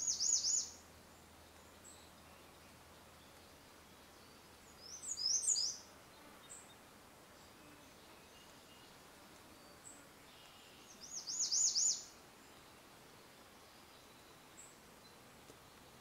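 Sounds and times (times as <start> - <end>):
background hiss: 0.0 - 16.0
songbird singing: 0.0 - 16.0.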